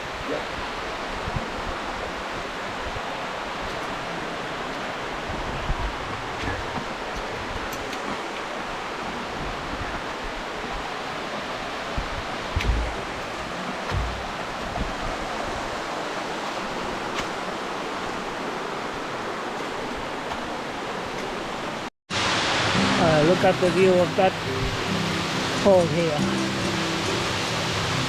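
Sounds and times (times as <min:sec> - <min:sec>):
waterfall rushing: 0:00.0 - 0:28.0
low thumps: 0:12.5 - 0:15.0.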